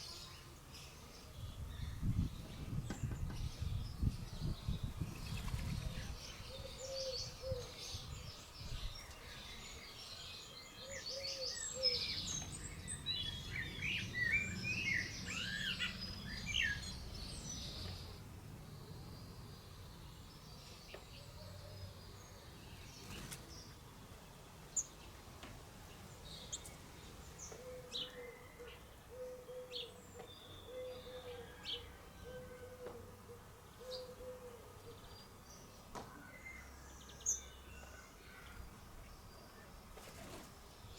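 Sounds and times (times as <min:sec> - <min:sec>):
songbirds chirping and warbling: 0:00.0 - 0:40.9.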